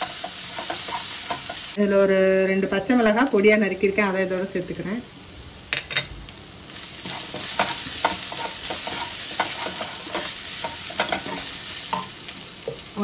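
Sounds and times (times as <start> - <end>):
spatula scraping and tapping pan: 0.0 - 1.8, 7.0 - 12.9
vegetables sizzling in oil: 0.0 - 13.0.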